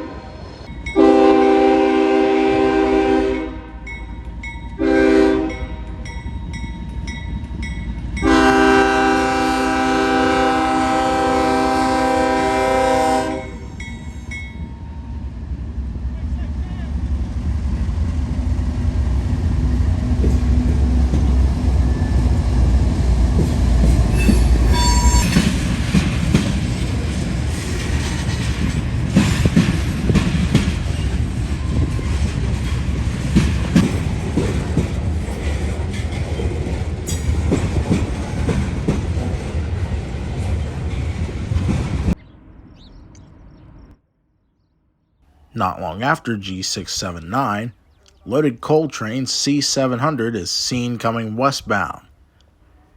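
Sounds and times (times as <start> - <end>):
diesel locomotive rumble: 0.0 - 43.9
high-pitched squeal: 24.1 - 25.8.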